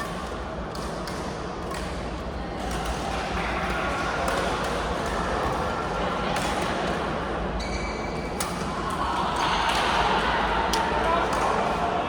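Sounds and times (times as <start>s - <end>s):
murmur of voices in gym: 0.0s - 12.0s.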